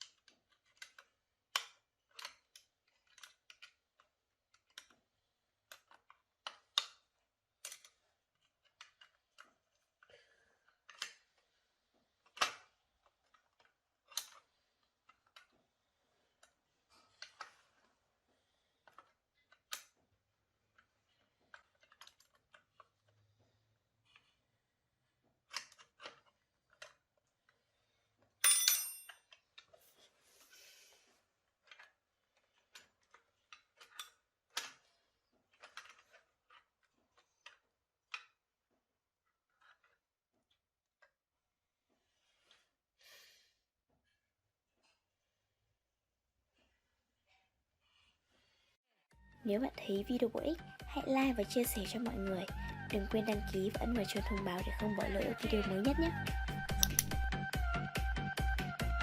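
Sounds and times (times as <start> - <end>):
small clicks and taps: 0.0 - 5.0, 56.2 - 57.2.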